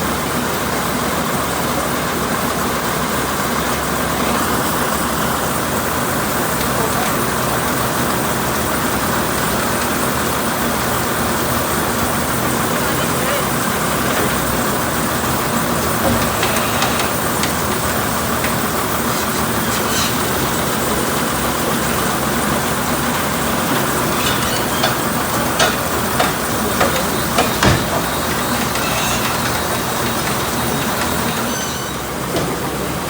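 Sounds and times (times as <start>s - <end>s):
truck engine running: 0.0s - 33.0s
sharp clanks and knocks: 13.6s - 21.5s, 22.9s - 32.7s.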